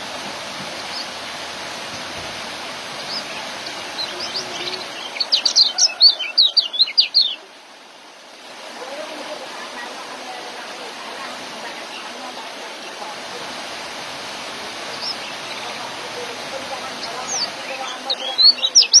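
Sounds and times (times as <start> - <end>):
steady hiss: 0.0 - 18.9
bird chirping: 3.0 - 7.5, 16.8 - 19.0.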